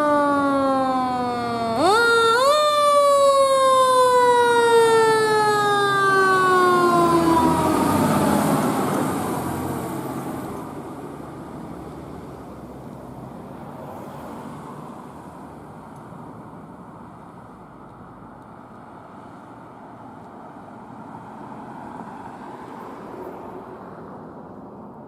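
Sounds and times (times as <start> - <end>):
fire truck siren wail: 0.0 - 11.9
passing vehicle engine and road noise: 0.0 - 25.0.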